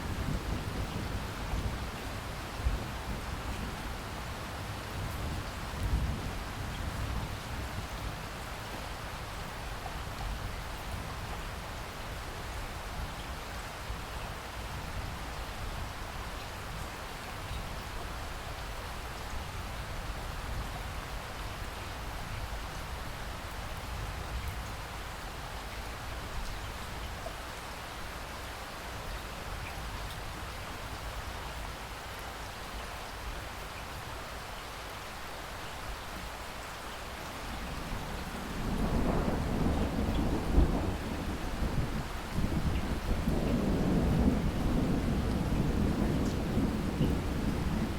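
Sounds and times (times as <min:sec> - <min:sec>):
rain hissing on ground: 0:00.0 - 0:47.9.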